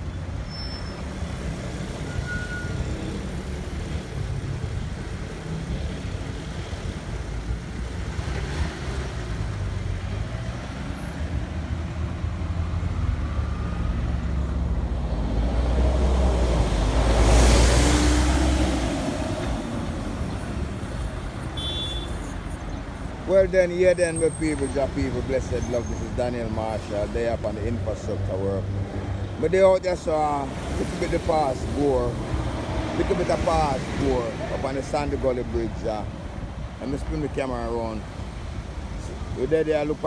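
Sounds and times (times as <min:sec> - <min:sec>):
road traffic: 0:00.0 - 0:40.0
vehicle passing close by: 0:07.6 - 0:21.6, 0:23.9 - 0:36.3.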